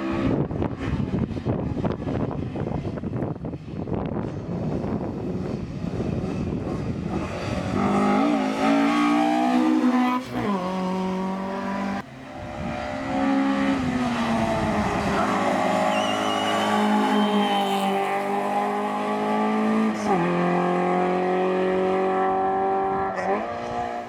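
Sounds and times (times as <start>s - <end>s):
race car engine revving: 3.9s - 24.0s
tyre squeal: 15.2s - 17.9s.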